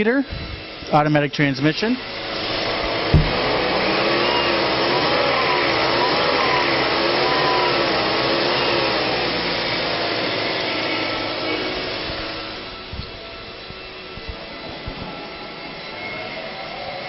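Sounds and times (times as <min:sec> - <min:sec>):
car engine running with whine: 0:01.9 - 0:15.4.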